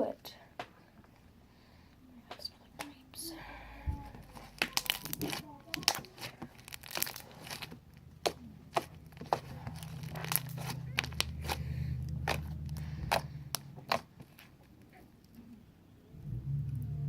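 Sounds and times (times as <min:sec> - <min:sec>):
steady low hum: 0:01.2 - 0:17.0.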